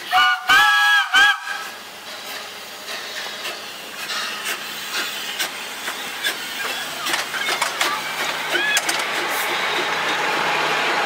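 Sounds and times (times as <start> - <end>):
train rushing past: 0.0 - 11.0
train wheels clicking on rail joints: 0.0 - 11.0.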